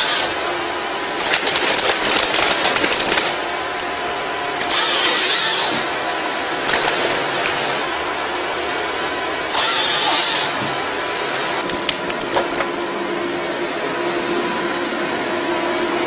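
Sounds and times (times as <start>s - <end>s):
chainsaw cutting: 0.0s - 0.6s, 1.2s - 3.8s, 4.6s - 8.0s, 9.5s - 10.8s.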